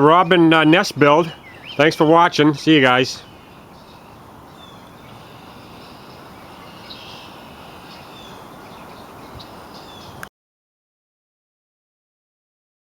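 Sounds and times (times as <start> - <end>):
outdoor background noise: 0.0 - 10.3
faint bird chirps: 1.2 - 2.1, 2.8 - 10.2.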